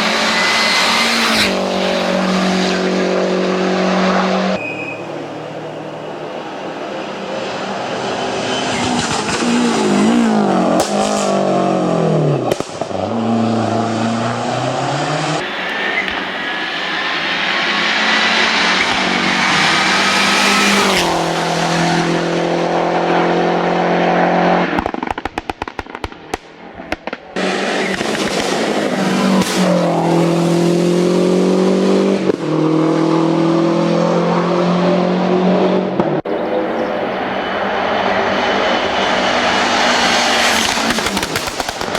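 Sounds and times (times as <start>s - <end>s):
car engine accelerating hard: 0.0s - 25.0s, 27.4s - 41.9s
sharp exhaust pops: 12.4s - 13.0s, 24.7s - 28.7s, 40.3s - 41.9s.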